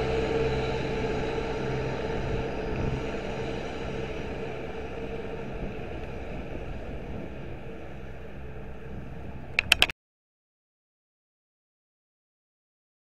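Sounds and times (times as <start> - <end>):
train rumbling: 0.0 - 9.9
sharp clicks: 9.6 - 9.9.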